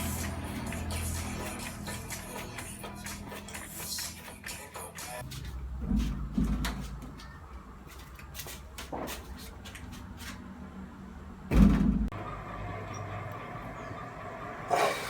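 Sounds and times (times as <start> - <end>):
heavy thump: 11.5 - 12.1.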